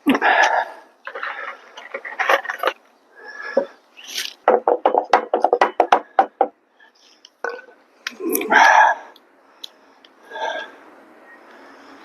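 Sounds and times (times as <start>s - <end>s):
tools clattering and scraping: 1.0s - 2.9s.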